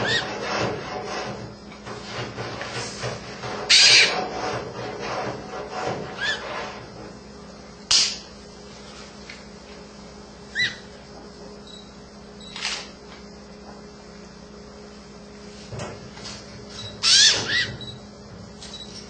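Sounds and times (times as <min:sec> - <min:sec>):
macaws calling harsh rasps: 0:03.7 - 0:04.2, 0:10.5 - 0:10.9, 0:17.0 - 0:17.8.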